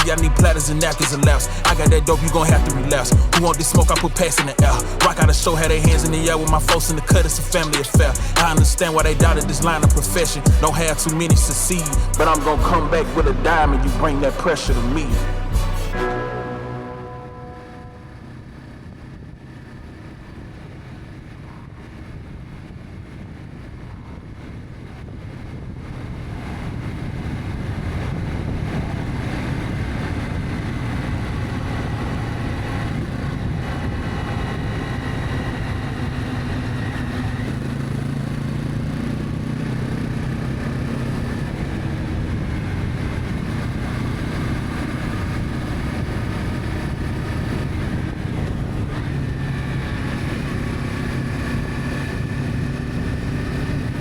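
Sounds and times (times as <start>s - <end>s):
road noise: 0.0s - 54.0s
motorcycle engine running: 0.1s - 14.0s, 27.0s - 54.0s
wind noise: 17.4s - 54.0s.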